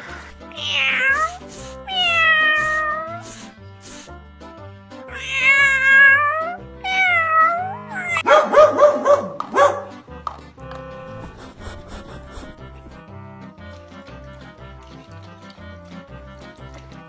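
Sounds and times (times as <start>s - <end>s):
background music with steady beat: 0.0s - 7.4s, 8.2s - 17.0s
cat meowing: 0.5s - 3.5s, 5.1s - 8.3s
dog barking rapidly: 8.0s - 10.0s.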